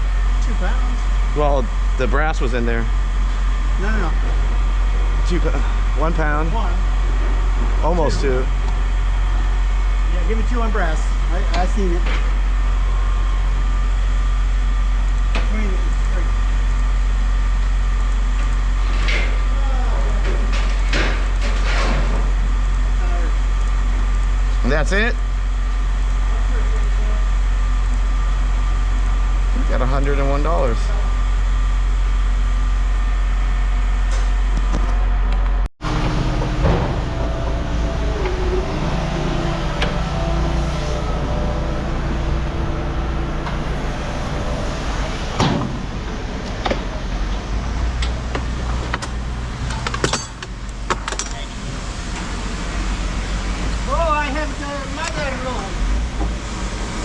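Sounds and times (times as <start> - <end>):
clattering knocks and scrapes: 20.2 - 22.4
low engine hum: 25.2 - 57.0
sharp knocks and rattles: 48.0 - 51.4.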